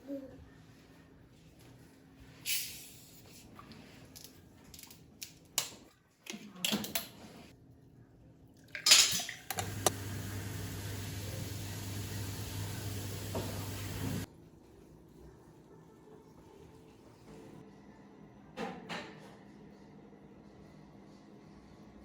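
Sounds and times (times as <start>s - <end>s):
dishes and cutlery clattering: 8.8s - 9.7s.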